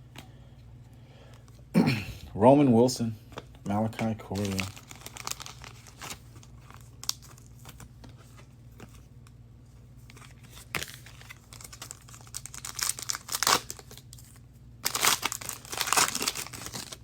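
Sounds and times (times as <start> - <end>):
steady low hum: 0.0 - 17.0
foil wrappers crinkling and tearing: 3.7 - 8.5, 10.0 - 17.0.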